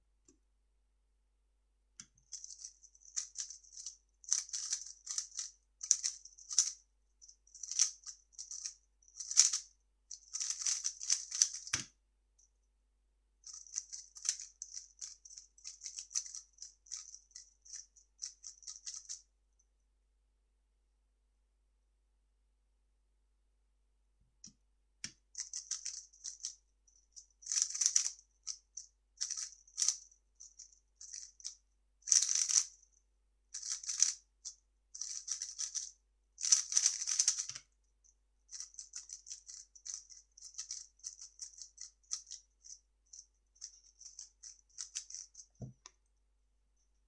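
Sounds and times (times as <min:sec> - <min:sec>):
puzzle cube plastic clicks: 0:10.3 - 0:11.9, 0:35.0 - 0:37.6.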